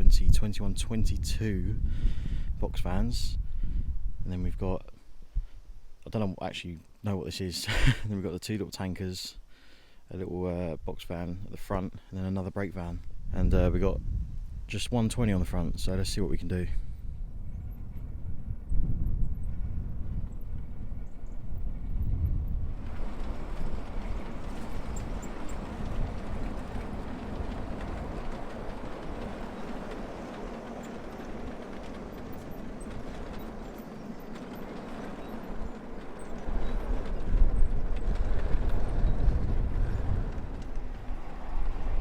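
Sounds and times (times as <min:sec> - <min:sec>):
wind buffeting microphone: 0:00.0 - 0:05.8, 0:12.9 - 0:42.0
miniature train wheels clattering: 0:22.8 - 0:41.8.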